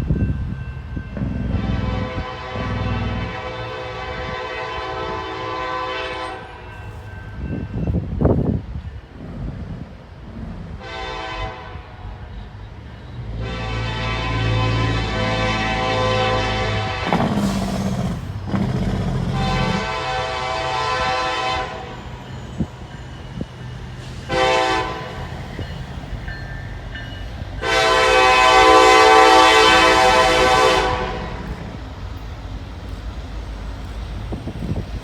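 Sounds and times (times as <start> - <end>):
locomotive air horn blasts: 1.5 - 6.6, 10.8 - 12.0, 13.3 - 18.0, 19.3 - 22.1, 24.2 - 25.3, 27.6 - 31.8.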